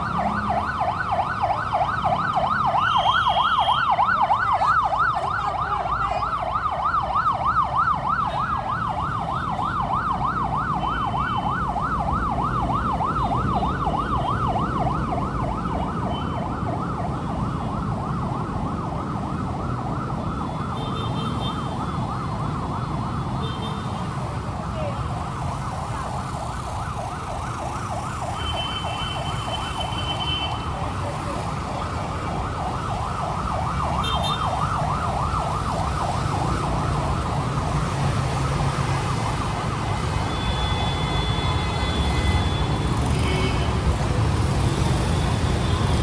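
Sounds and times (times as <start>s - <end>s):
emergency siren yelping: 0.0s - 23.5s, 24.2s - 43.2s, 43.8s - 46.0s
road traffic rumble: 0.0s - 46.0s.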